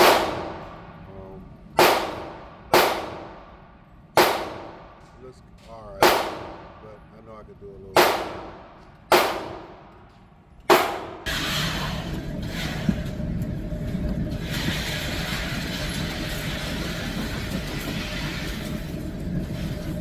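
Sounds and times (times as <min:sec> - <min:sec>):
pistol shot: 0:00.0 - 0:01.0, 0:01.8 - 0:03.6, 0:04.2 - 0:05.1, 0:06.0 - 0:06.8, 0:08.0 - 0:10.0, 0:10.7 - 0:11.3
steady rumbling background noise: 0:00.0 - 0:20.0.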